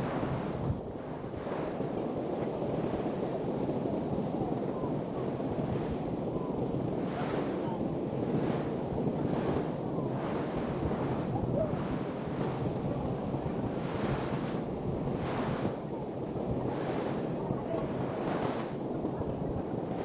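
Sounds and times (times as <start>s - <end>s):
ocean surf breaking on a beach: 0.0s - 20.0s
wind rumbling on microphone: 0.0s - 20.0s.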